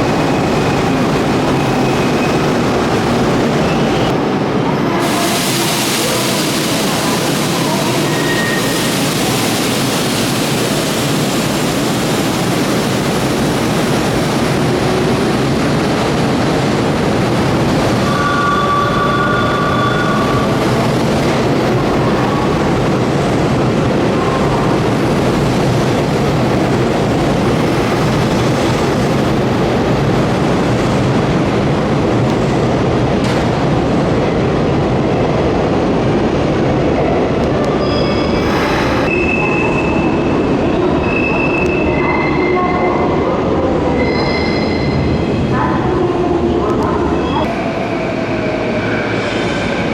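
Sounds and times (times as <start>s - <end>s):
electric train rail noise: 0.0s - 49.9s.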